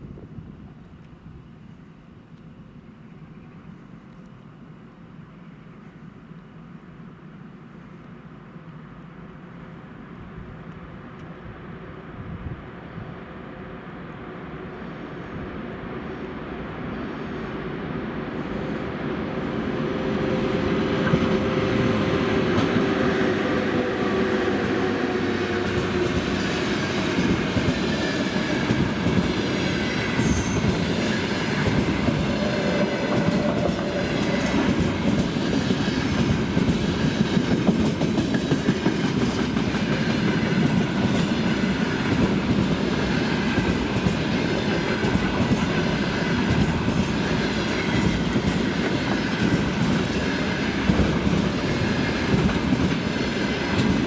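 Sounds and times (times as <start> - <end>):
electric locomotive hum: 4.7 - 54.0
train wheels clattering over rails: 19.4 - 54.0.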